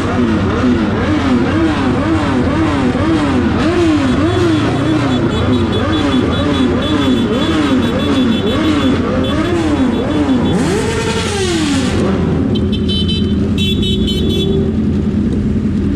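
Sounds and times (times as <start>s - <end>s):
motorcycle engines revving: 0.0s - 15.9s
motorcycle engine idling: 3.9s - 10.8s.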